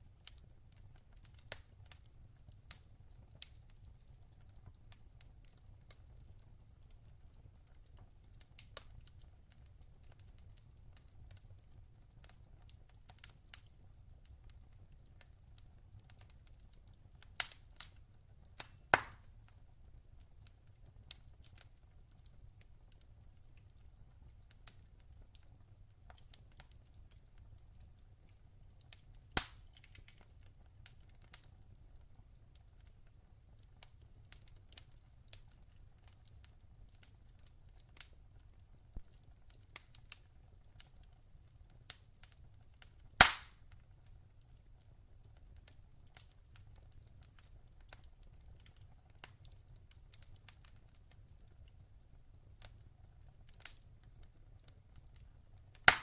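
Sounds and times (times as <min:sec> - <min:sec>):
log fire crackling: 0:00.0 - 0:56.0
loud fire pops: 0:18.6 - 0:19.3, 0:29.3 - 0:30.2, 0:43.2 - 0:43.6.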